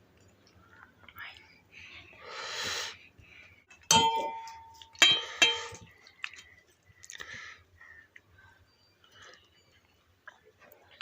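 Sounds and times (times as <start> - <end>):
dishes clinking: 3.7 - 5.9.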